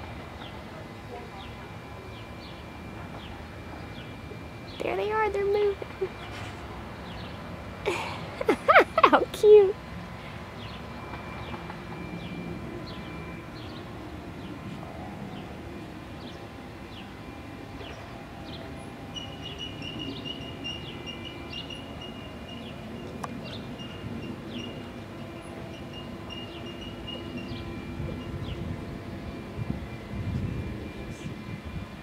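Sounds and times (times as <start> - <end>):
thin high tone: 1.1 - 9.8, 17.0 - 32.0.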